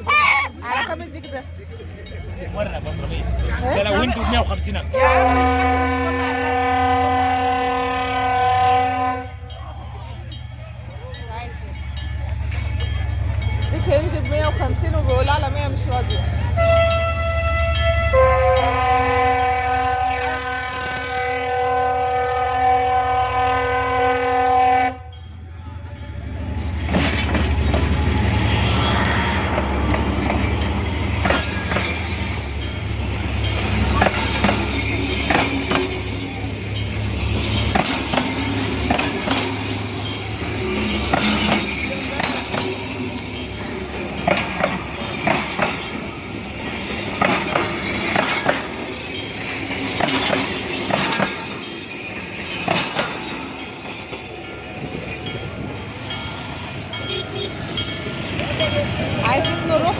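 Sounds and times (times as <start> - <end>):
train rumbling past: 0.0 - 59.9
wheels clicking over rails: 28.9 - 59.9.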